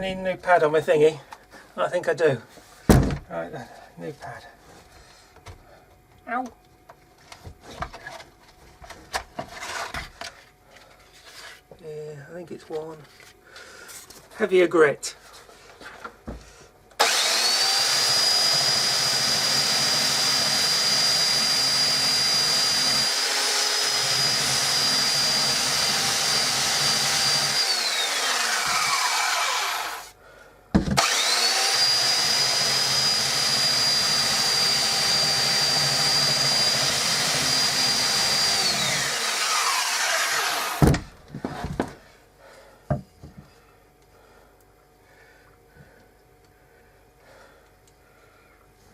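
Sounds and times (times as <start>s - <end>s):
electric sander sanding wood: 17.0s - 30.1s, 31.0s - 40.8s.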